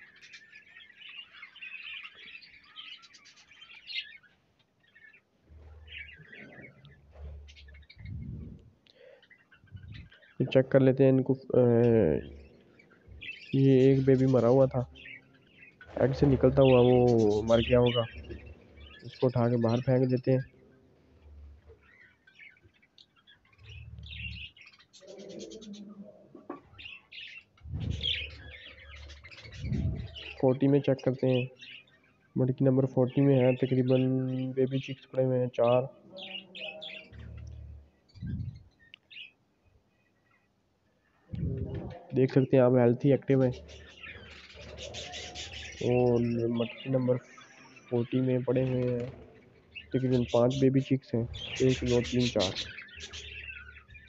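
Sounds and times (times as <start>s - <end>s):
budgerigars chattering: 0.0s - 10.6s, 11.7s - 20.6s, 21.2s - 25.9s, 26.6s - 39.3s, 41.4s - 54.0s
low rumble: 8.0s - 8.7s, 27.7s - 28.4s.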